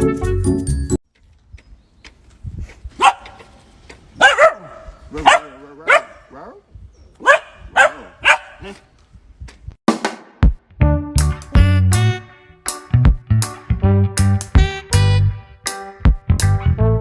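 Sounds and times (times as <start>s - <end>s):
dog barking: 3.0s - 3.4s, 4.2s - 6.6s, 7.2s - 8.8s.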